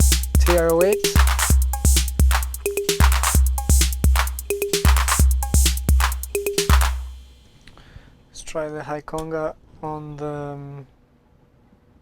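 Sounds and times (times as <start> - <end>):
high conga hits: 0.0 - 7.6
ticking hi-hats: 0.0 - 7.8.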